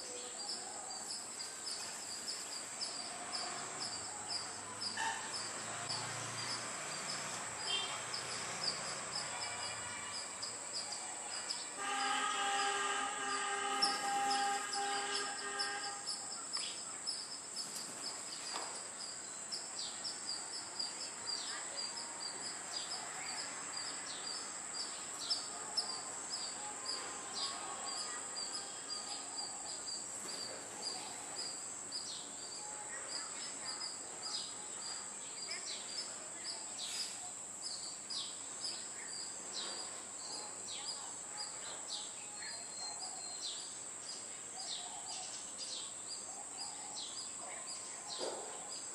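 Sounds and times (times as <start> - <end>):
small birds chirping: 0.0 - 11.8, 13.3 - 48.9
high-pitched insect drone: 1.0 - 16.5
distant train horn: 11.8 - 16.3, 26.4 - 29.3.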